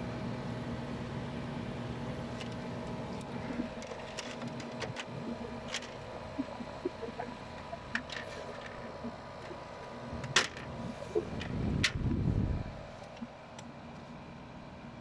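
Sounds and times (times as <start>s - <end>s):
air conditioner fan humming: 0.0s - 15.0s.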